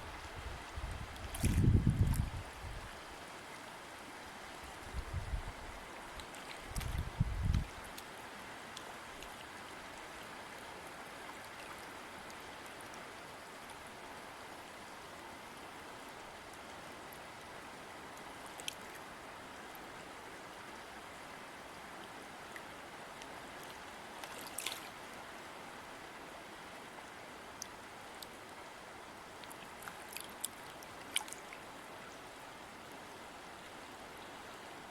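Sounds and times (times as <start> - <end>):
river flowing: 0.0 - 34.9
small water splashes: 1.2 - 2.3, 6.1 - 8.1, 23.6 - 25.1, 29.4 - 31.6.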